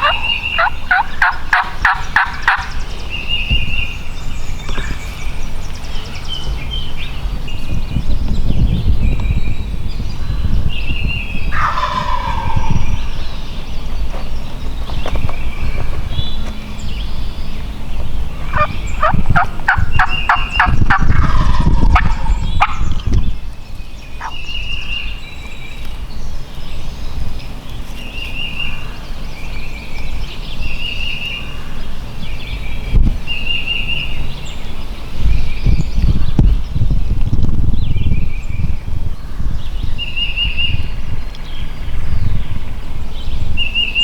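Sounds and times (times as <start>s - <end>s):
turkey gobbling: 0.0s - 2.8s, 11.5s - 13.3s, 18.4s - 23.1s, 24.2s - 24.4s.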